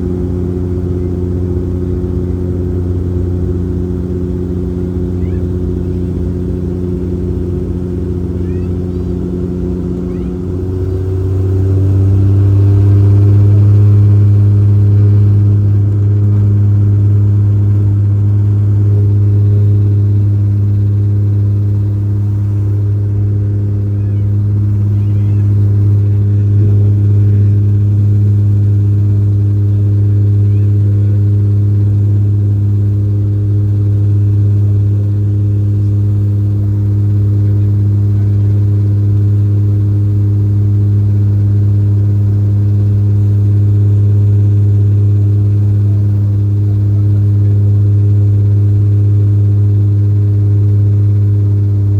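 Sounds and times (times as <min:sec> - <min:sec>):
turboprop propellers droning: 0:00.0 - 0:51.9.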